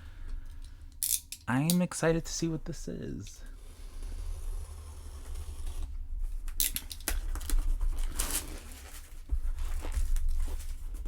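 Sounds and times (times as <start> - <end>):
low steady hum: 0.0 - 7.9
cardboard packaging clicks and scrapes: 3.8 - 11.0
packaging rustling and tearing: 6.6 - 11.0.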